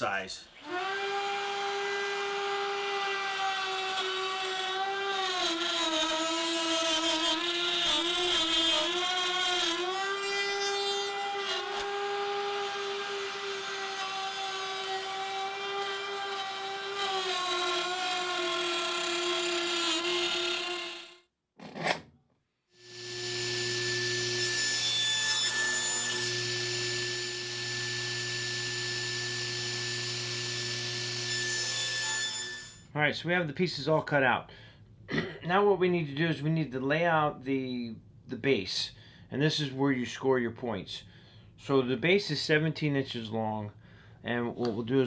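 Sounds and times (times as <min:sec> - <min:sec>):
router motor whining: 0:22.8 - 0:24.9, 0:25.5 - 0:31.8
power tool humming on wood: 0:22.8 - 0:32.4.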